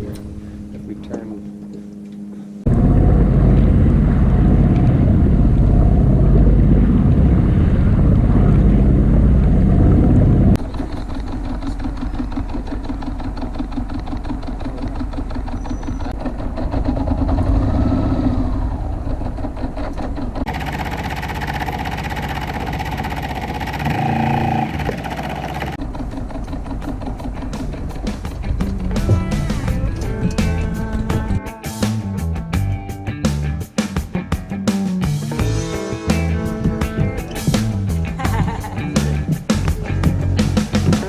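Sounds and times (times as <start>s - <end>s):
boat motor humming: 0.0s - 31.8s, 35.4s - 41.0s
wind rumble on microphone: 2.6s - 10.6s.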